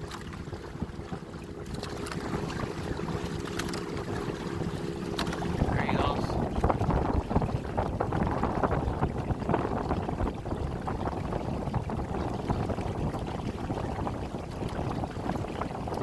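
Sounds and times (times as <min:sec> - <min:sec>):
water splashing against kayak hull: 0:00.0 - 0:16.0
wind buffeting microphone: 0:00.0 - 0:16.0.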